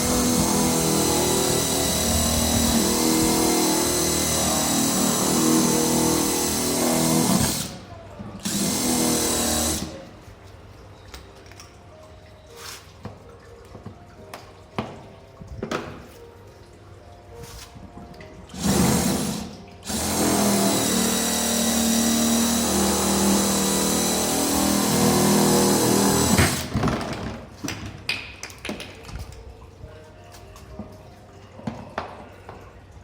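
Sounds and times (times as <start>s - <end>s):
electric drill boring plastic: 0.0s - 7.8s, 8.4s - 10.0s, 18.5s - 26.8s.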